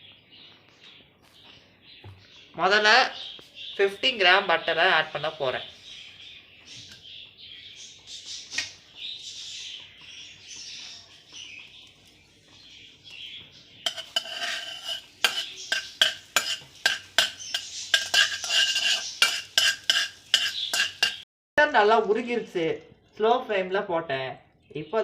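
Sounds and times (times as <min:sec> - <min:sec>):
utensil scraping and clinking pan: 0:13.8 - 0:21.2.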